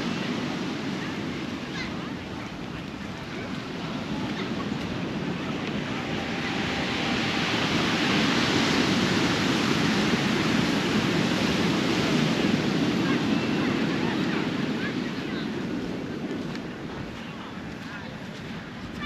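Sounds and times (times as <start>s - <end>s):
surf breaking on a beach: 0.0s - 19.0s.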